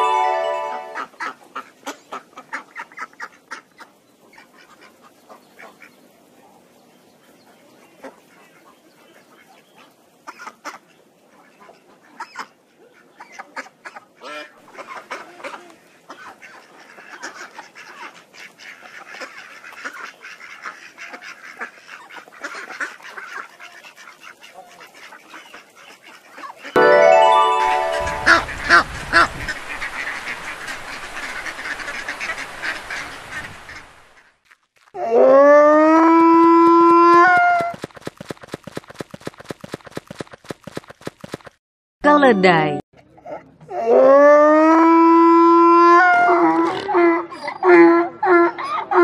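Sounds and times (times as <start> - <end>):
ducks quacking: 11.6 - 26.6, 29.1 - 34.0.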